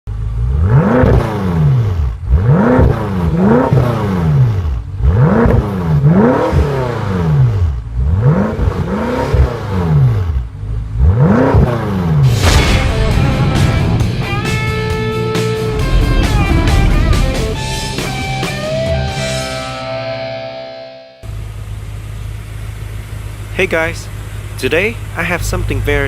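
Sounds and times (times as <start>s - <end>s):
car engine revving: 0.1s - 20.4s.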